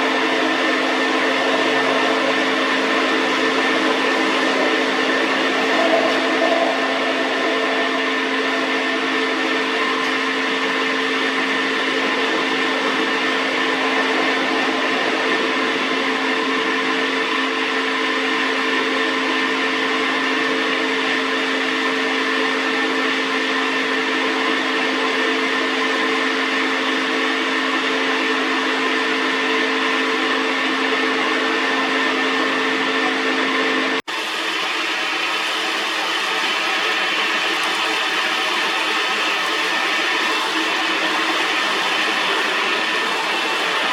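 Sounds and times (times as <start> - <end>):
metal lathe whining: 0.0 - 19.8, 34.2 - 43.9.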